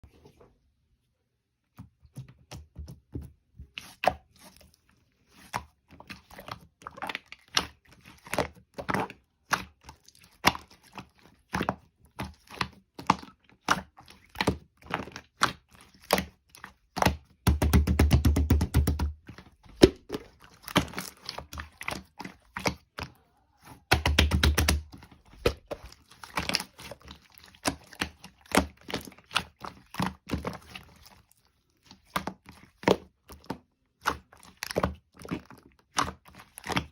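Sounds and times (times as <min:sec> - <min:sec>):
fast crackling of slime: 0:05.3 - 0:36.9.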